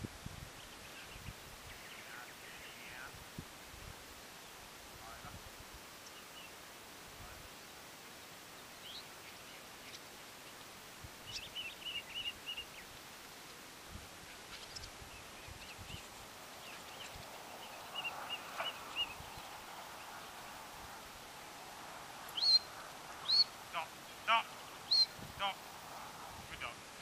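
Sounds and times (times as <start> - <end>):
faint background noise: 0.0 - 27.0
high bird chirps: 14.6 - 20.4, 22.3 - 23.6, 24.3 - 25.2.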